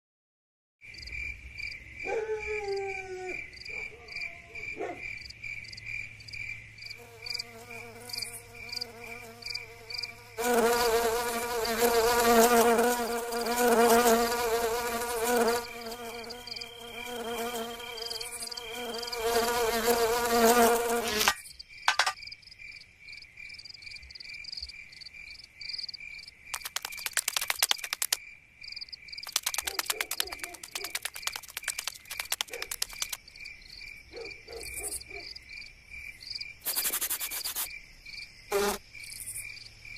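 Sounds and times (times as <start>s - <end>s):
cricket chirping: 0.8s - 39.9s
rapid clicking: 26.6s - 28.2s, 29.2s - 33.2s
cartoon insect sound effects: 29.2s - 33.2s, 36.6s - 37.7s.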